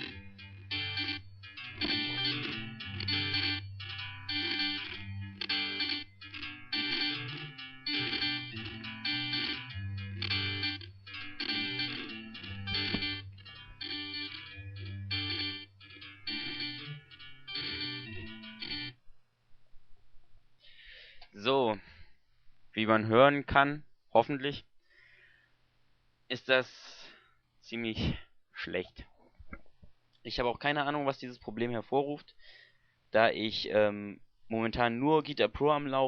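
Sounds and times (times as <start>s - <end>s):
electric guitars playing: 0.0s - 18.9s.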